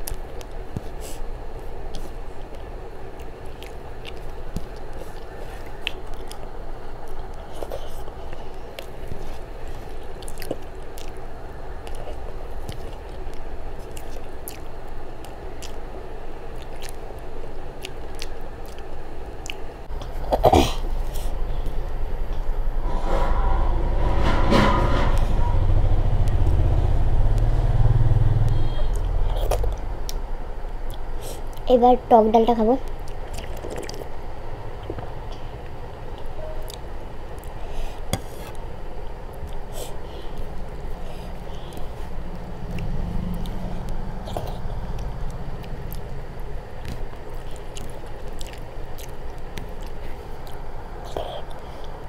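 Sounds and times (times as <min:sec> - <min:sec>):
chewing and mouth sounds: 0:00.0 - 0:21.8, 0:28.4 - 0:31.7, 0:32.8 - 0:35.4, 0:36.1 - 0:52.0
steady low hum: 0:00.0 - 0:52.0
low rumble: 0:21.4 - 0:30.8, 0:40.6 - 0:47.8.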